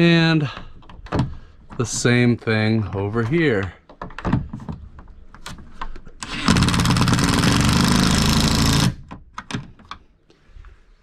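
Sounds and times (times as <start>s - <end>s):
cordless power driver running: 6.2s - 9.0s.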